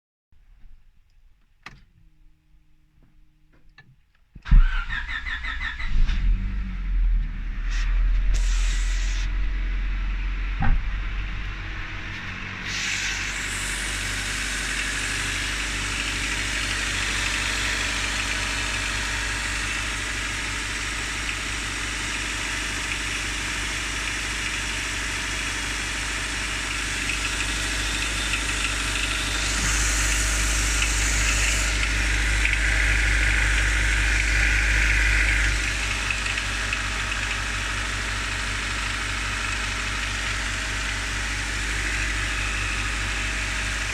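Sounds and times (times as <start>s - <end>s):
cold car engine running: 0.4s - 43.9s
engine knocking: 13.2s - 43.9s.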